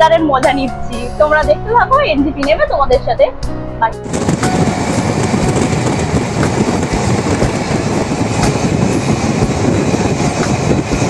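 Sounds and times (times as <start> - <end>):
wind: 0.0 - 11.0
train coach rumble and rattle: 4.0 - 11.0.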